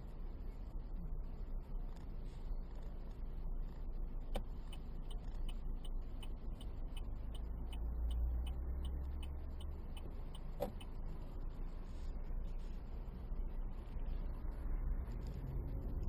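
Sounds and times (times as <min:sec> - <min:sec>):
low engine and road rumble: 0:00.0 - 0:16.0
turn-signal relay ticking: 0:04.2 - 0:11.6.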